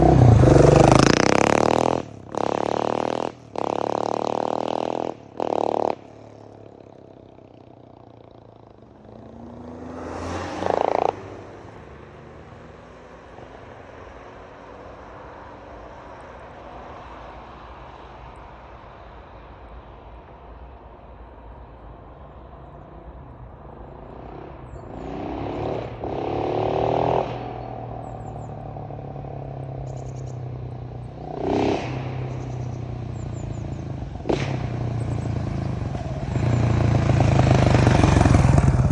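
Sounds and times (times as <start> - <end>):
motorcycle engine revving: 0.0 - 14.6, 24.1 - 38.9
motorcycle engine idling: 35.0 - 38.9.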